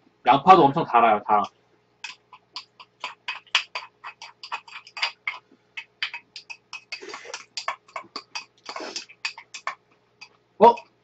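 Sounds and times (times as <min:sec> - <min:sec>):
chewing noodles: 0:02.0 - 0:10.4
wet mouth smacks: 0:02.0 - 0:10.4.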